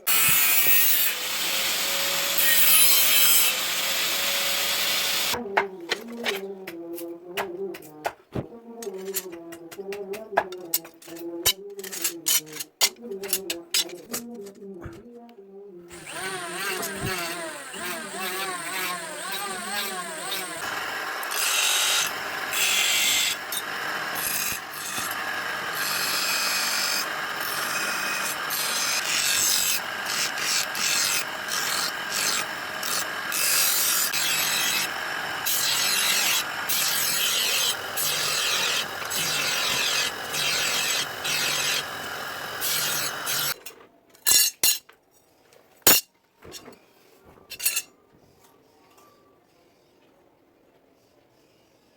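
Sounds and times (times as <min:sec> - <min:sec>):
blade scraping with abrasive tool: 0:00.1 - 0:05.4, 0:15.9 - 0:43.6.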